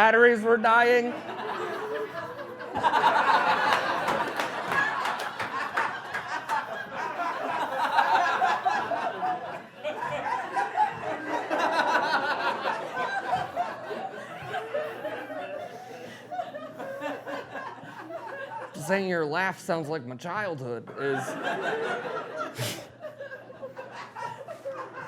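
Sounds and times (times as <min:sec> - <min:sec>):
audience laughing: 0:00.4 - 0:19.1, 0:20.9 - 0:25.0
scattered clapping: 0:03.5 - 0:06.7.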